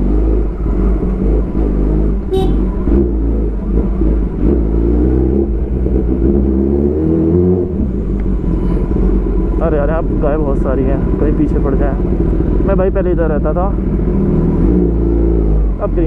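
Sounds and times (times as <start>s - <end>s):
motorcycle engine at low revs: 0.0s - 16.0s.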